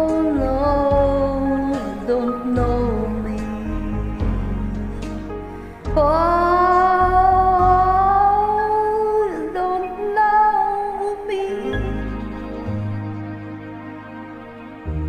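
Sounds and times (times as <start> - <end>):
woman singing wordless notes: 0.0 - 4.6, 5.8 - 12.2
soft karaoke backing track: 0.0 - 15.0.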